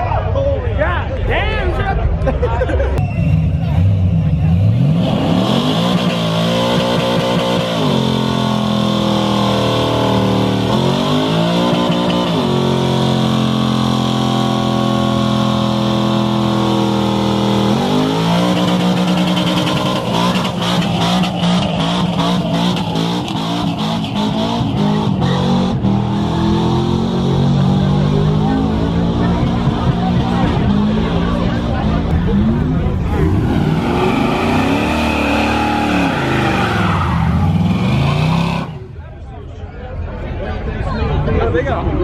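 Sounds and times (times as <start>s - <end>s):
car engine revving: 3.0s - 39.0s
tyres squealing: 33.1s - 38.8s.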